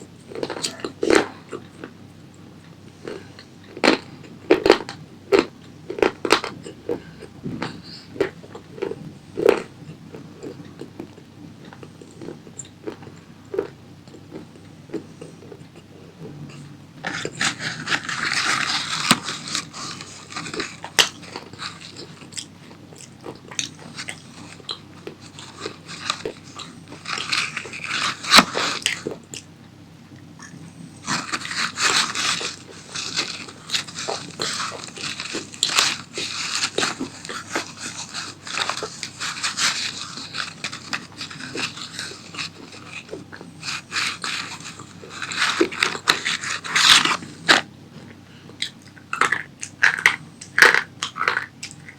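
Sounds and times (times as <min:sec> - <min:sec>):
person chewing crunchy food: 0:00.0 - 0:51.9.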